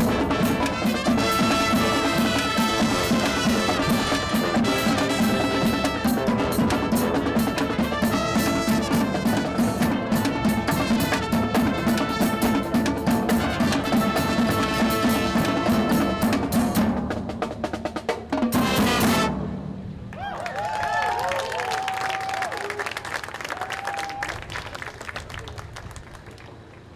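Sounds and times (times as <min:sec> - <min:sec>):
snare and bass drums: 0:00.0 - 0:19.7
loud band chord: 0:00.0 - 0:20.0
marching band playing: 0:00.0 - 0:20.1.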